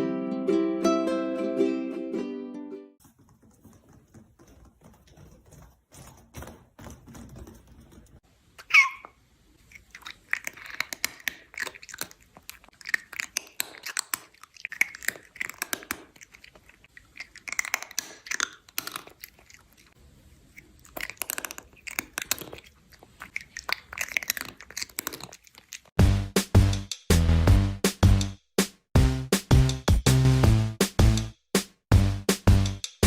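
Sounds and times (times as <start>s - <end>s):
animal chewing crunchy food: 3.0s - 8.2s, 9.6s - 26.0s
music with bass beat: 26.0s - 33.0s.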